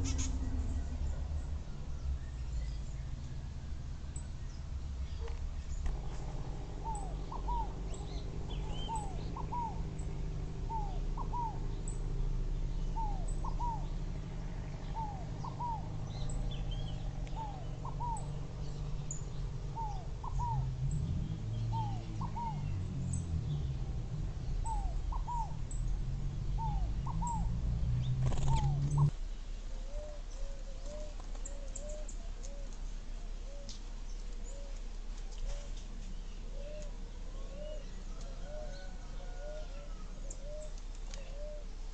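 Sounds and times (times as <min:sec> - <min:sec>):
low rumble: 0:00.0 - 0:29.4
small birds chirping: 0:00.0 - 0:41.9.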